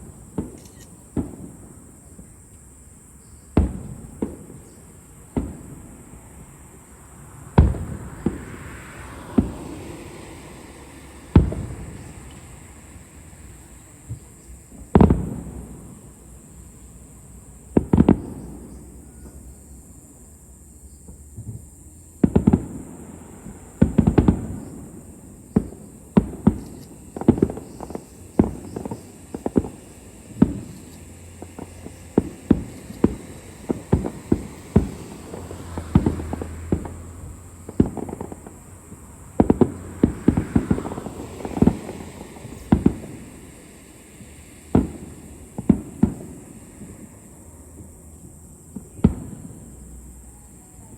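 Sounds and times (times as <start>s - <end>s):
fireworks booming: 0.0s - 50.9s.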